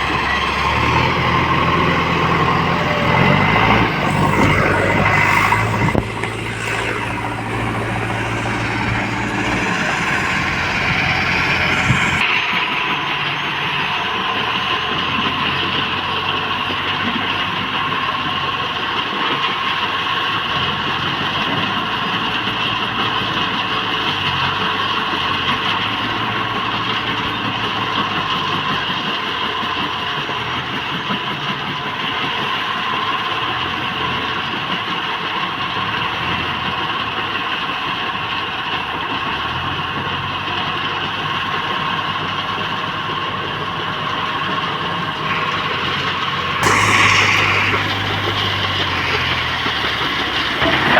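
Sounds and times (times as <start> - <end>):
steady higher whine: 0.0 - 13.9, 46.6 - 50.9
heavy machinery diesel engine: 0.0 - 50.9.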